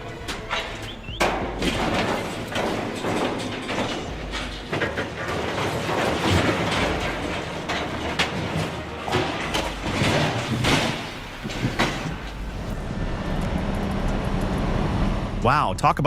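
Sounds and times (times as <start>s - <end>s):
heavy machinery clattering and grinding: 0.0s - 15.4s.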